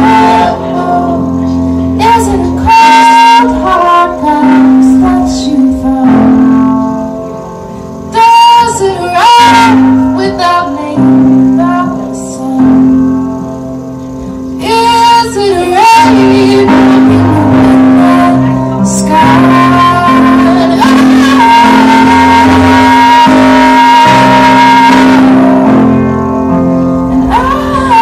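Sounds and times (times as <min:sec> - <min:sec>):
woman singing with a band: 0:00.0 - 0:01.2, 0:02.0 - 0:06.5, 0:14.6 - 0:25.6, 0:27.2 - 0:28.0
guitar: 0:00.0 - 0:28.0.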